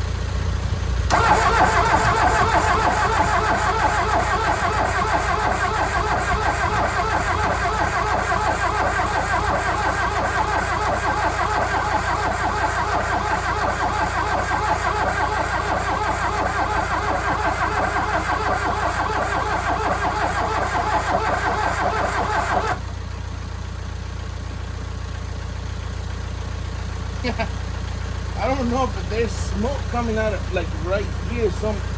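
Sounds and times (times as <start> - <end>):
steady engine hum: 0.0 - 31.9
starter motor cranking engine: 0.9 - 23.1.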